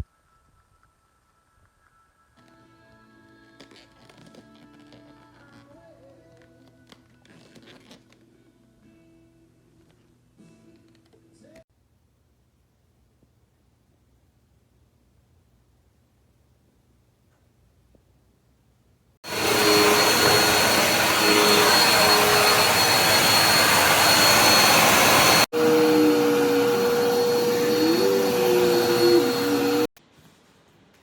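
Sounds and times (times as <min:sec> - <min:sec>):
vacuum cleaner running: 0:19.2 - 0:29.9.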